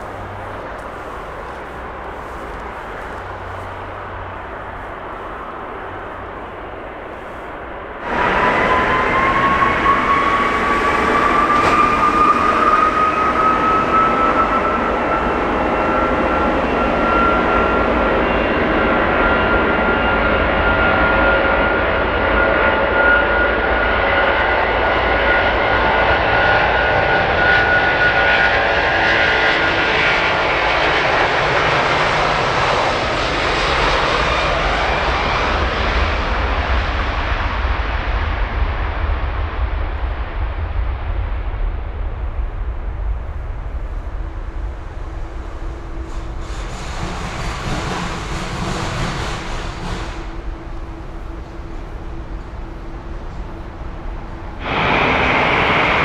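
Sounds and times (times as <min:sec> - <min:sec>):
jet engine roar with whine: 0:00.0 - 0:56.0
low rumble: 0:34.7 - 0:56.0.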